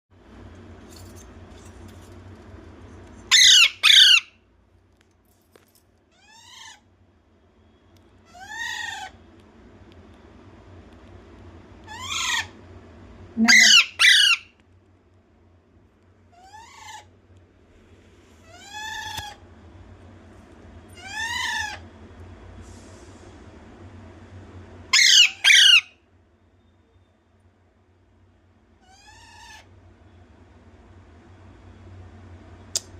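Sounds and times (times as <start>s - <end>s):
parrot calling: 3.3s - 4.4s, 6.1s - 6.9s, 8.2s - 9.2s, 11.8s - 12.6s, 13.4s - 14.6s, 16.3s - 17.1s, 18.4s - 19.4s, 20.9s - 21.9s, 24.9s - 26.0s, 28.8s - 29.7s
parrot harsh squawks: 3.3s - 4.4s, 6.2s - 6.9s, 8.2s - 9.2s, 11.9s - 12.6s, 13.4s - 14.6s, 16.3s - 17.1s, 18.4s - 19.4s, 21.0s - 21.8s, 24.9s - 26.0s, 28.8s - 29.7s.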